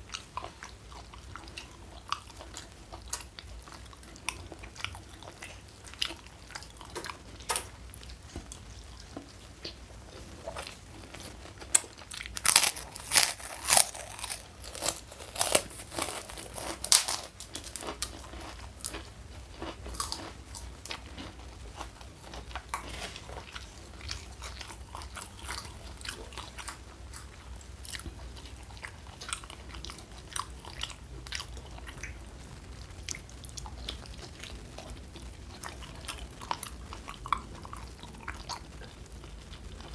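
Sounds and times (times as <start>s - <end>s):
people chewing crunchy food: 0.0s - 39.9s.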